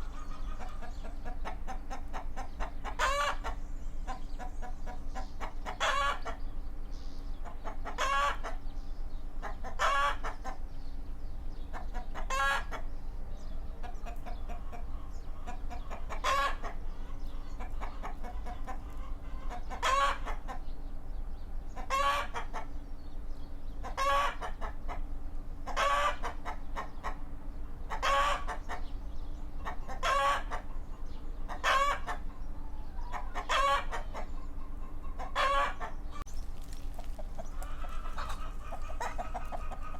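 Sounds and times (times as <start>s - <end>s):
chicken squawking: 0.0s - 4.5s, 5.2s - 6.4s, 7.4s - 8.6s, 9.4s - 10.6s, 11.7s - 12.8s, 14.5s - 20.6s, 27.9s - 28.8s, 29.6s - 30.8s, 31.5s - 32.4s, 33.0s - 36.0s, 36.6s - 39.9s.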